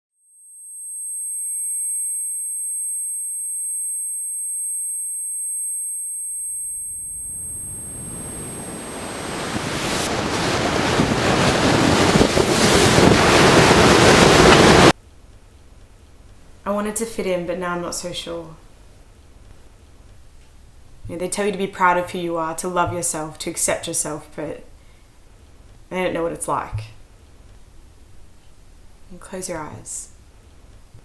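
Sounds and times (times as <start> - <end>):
high-pitched ringing tone: 0.2 - 9.4
rush of noise: 7.2 - 15.0.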